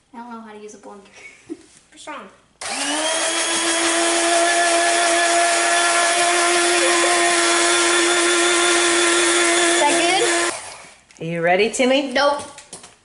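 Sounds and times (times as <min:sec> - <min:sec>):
electric blender running: 0:02.6 - 0:11.0.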